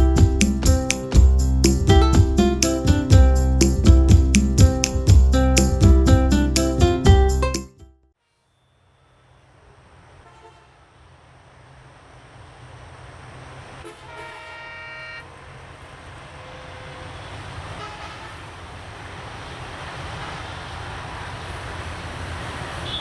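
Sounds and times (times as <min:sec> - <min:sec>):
train horn blast: 0:13.8 - 0:15.2, 0:17.8 - 0:18.4.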